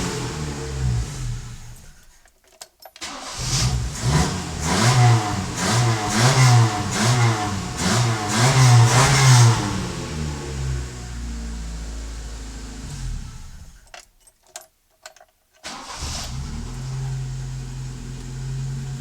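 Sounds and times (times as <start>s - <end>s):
car engine revving: 0.0s - 2.0s, 3.0s - 13.8s.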